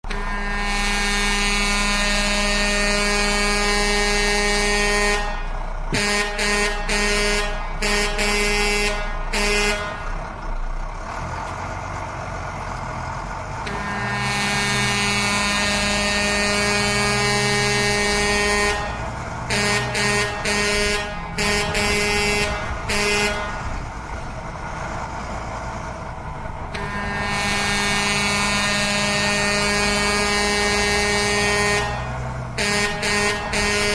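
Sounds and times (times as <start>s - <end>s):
vehicle horn blasts and toots: 0.1s - 10.0s, 13.7s - 23.6s, 26.7s - 33.9s.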